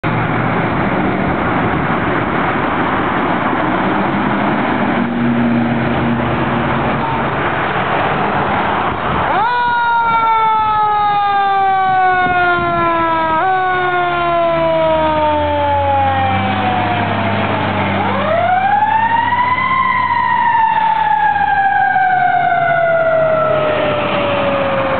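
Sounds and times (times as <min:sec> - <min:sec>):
loud steady rushing noise: 0:00.0 - 0:09.4
fire engine siren: 0:00.1 - 0:24.9.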